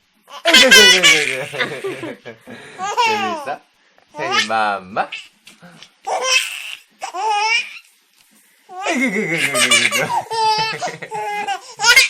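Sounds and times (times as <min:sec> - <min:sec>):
baby laughing: 0:00.3 - 0:02.1, 0:02.8 - 0:03.5, 0:06.1 - 0:07.9, 0:08.7 - 0:12.0.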